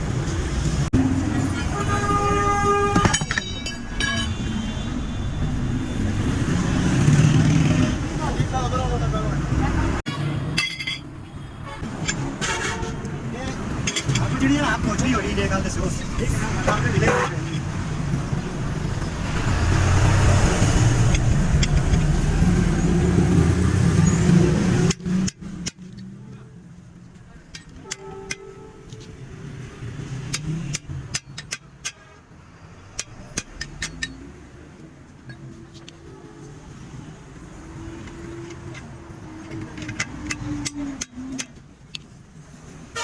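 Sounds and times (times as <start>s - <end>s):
vehicle engine rumble: 0.0s - 31.8s
road traffic passing: 0.0s - 43.0s
vehicle horn tooting: 1.6s - 3.2s.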